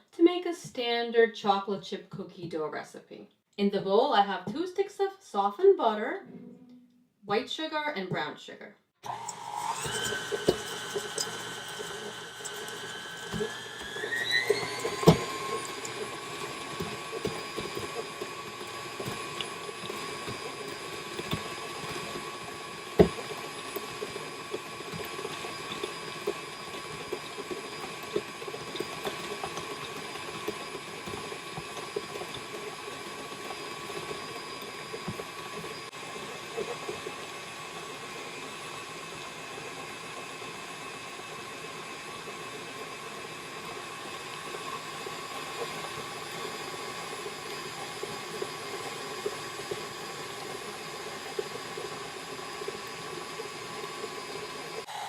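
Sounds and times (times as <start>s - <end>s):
stand mixer motor whine: 9.0s - 55.0s.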